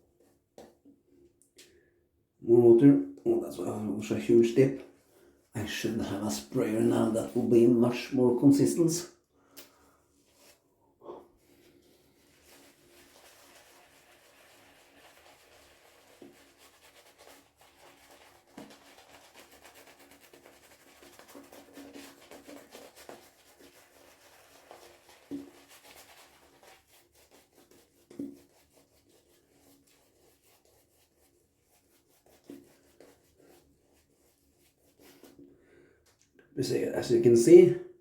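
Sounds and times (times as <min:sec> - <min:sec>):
shaving brush rubbing lather: 0:05.6 - 0:08.9, 0:10.2 - 0:10.6, 0:11.4 - 0:35.4.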